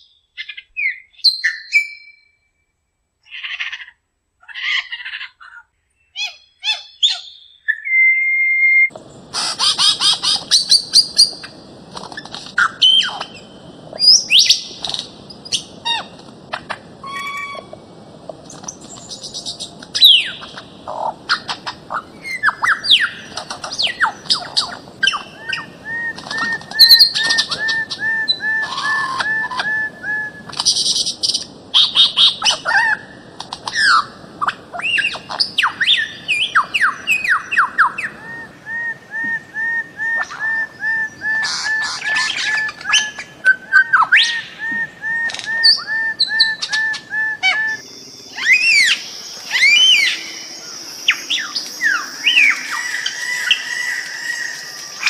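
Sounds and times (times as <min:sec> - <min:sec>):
whistles and chirps of birds: 0:00.0 - 0:02.6, 0:05.9 - 0:17.9, 0:18.5 - 0:55.0
evenly spaced bird notes: 0:18.5 - 0:34.1, 0:39.7 - 0:55.0.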